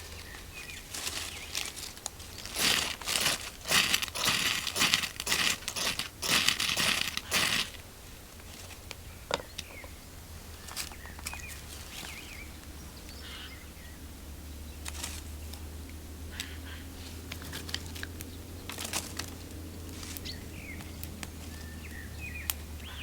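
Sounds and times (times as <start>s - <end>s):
crinkling rustling: 0.0s - 8.9s.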